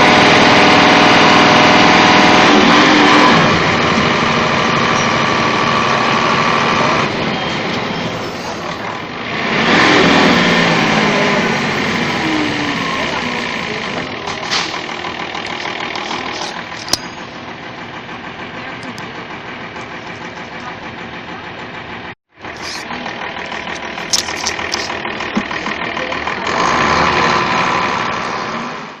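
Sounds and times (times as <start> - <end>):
bus engine running: 0.0 - 29.0.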